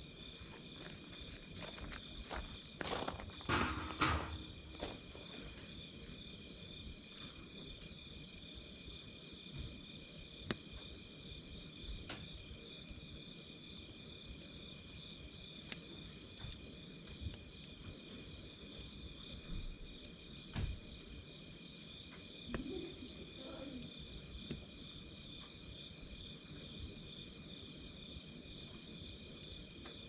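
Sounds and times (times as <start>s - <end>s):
crickets chirring: 0.0s - 30.0s
wood campfire crackling: 0.0s - 30.0s.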